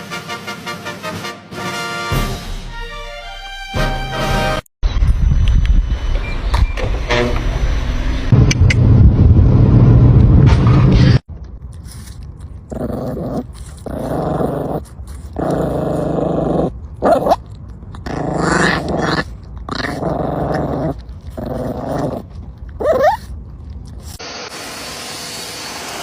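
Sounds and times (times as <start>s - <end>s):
dog growling: 11.9s - 24.2s
dog yelping: 12.8s - 23.4s.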